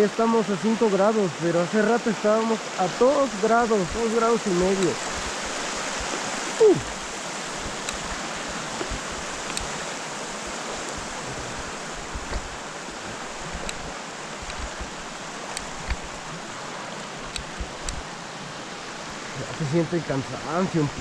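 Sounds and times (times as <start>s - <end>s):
mountain stream rushing: 0.0s - 21.0s
faint clicks: 7.8s - 8.1s, 8.8s - 9.7s, 13.5s - 16.1s, 17.2s - 18.0s.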